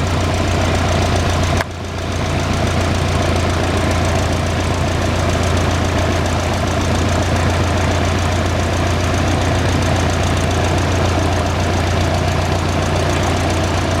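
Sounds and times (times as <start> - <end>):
propeller plane engine running: 0.0 - 14.0.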